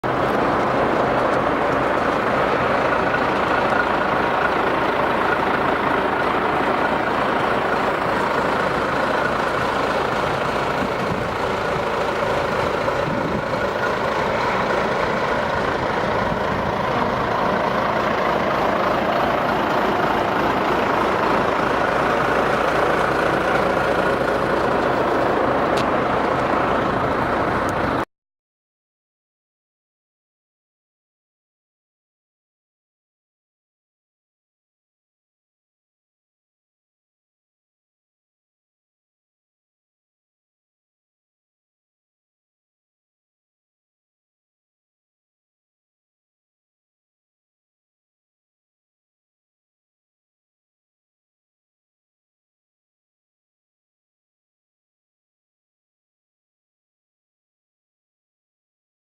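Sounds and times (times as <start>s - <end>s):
heavy engine idling: 0.0s - 28.1s.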